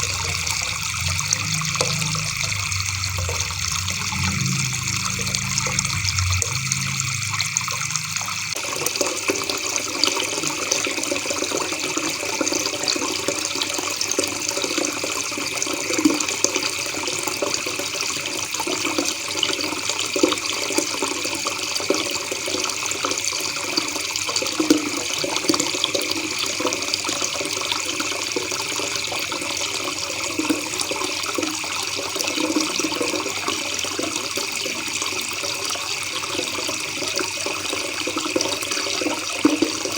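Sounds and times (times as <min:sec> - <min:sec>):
low water rumble: 0:00.0 - 0:08.8.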